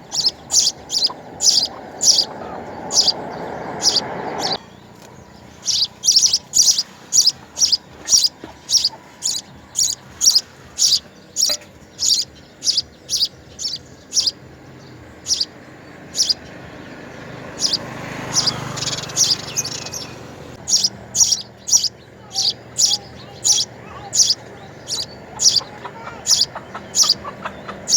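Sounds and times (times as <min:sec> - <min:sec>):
low rushing sound: 0:00.0 - 0:05.0
small bird chirping: 0:00.0 - 0:27.9.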